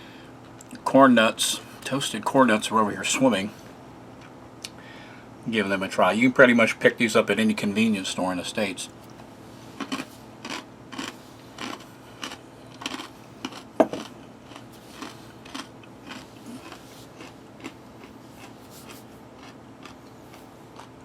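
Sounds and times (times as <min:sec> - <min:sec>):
chewing crunchy snacks: 0:09.1 - 0:21.0.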